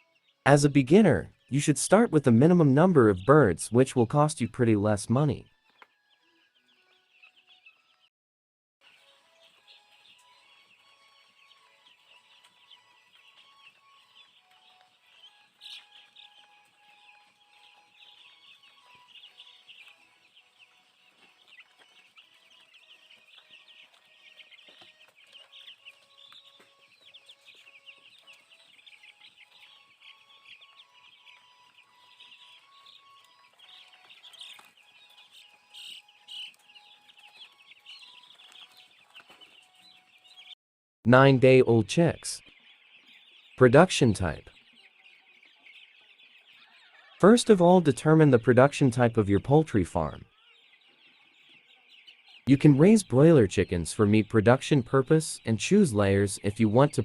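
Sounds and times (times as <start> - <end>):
chicks peeping: 0.0 - 8.1, 8.8 - 57.0.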